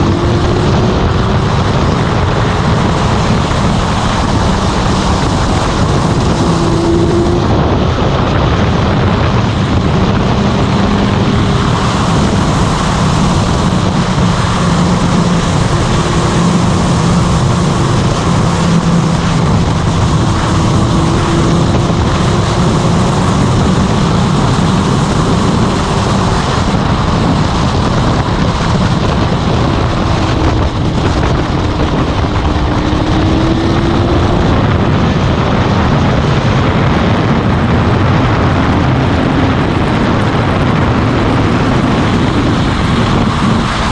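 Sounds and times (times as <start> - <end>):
motorcycle engine cruising: 0.0 - 43.9
wind rushing over microphone: 0.0 - 43.9.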